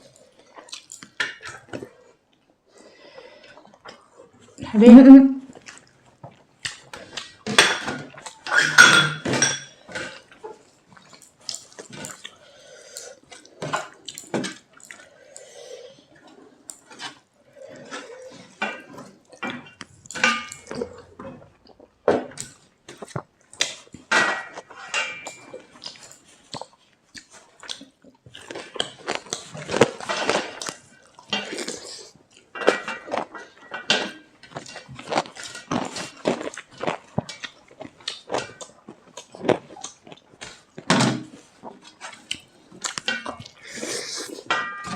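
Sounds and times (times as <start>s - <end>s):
plates and cutlery clinking: 7.5s - 10.2s, 18.6s - 21.0s, 32.5s - 34.7s, 44.4s - 44.9s.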